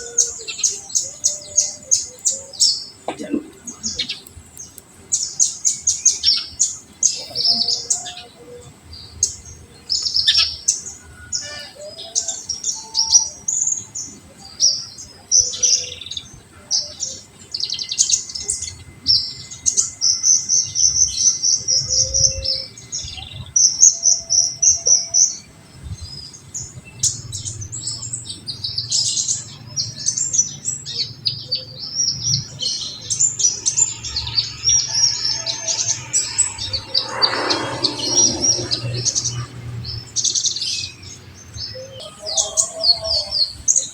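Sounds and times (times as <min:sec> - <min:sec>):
sunbird chirps and trills: 0:24.8 - 0:43.9.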